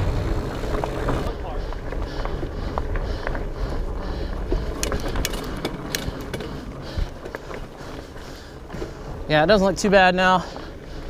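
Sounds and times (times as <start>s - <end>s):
wind rumble on microphone: 0.0s - 2.7s
bike clicks knocks and rattles: 4.5s - 7.6s.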